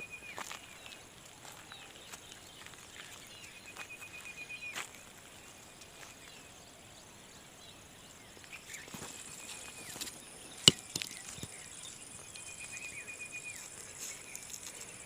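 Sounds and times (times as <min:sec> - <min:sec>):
rapid trilled chirping call: 0:08.6 - 0:15.0.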